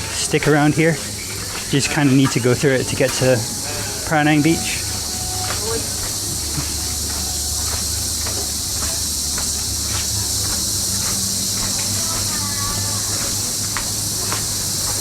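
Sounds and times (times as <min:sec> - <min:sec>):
faint distant voices: 0:00.0 - 0:15.0
insects chirring: 0:00.0 - 0:15.0.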